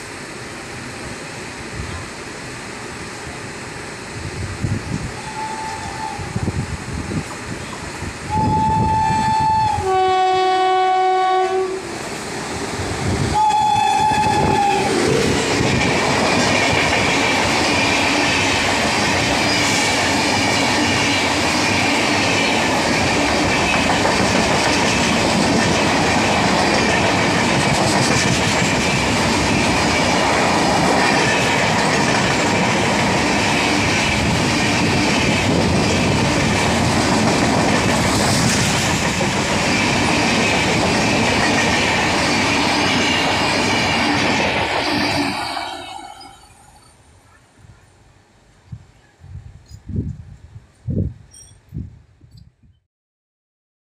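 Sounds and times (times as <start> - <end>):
locomotive horn: 8.3 - 11.9, 13.3 - 15.0
wheels clickety-clack over rail joints: 12.1 - 45.8.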